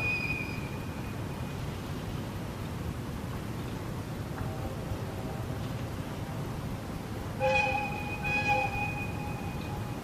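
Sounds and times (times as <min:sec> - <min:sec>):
low rumble and hiss: 0:00.0 - 0:10.0
horn or whistle blast: 0:07.4 - 0:09.7.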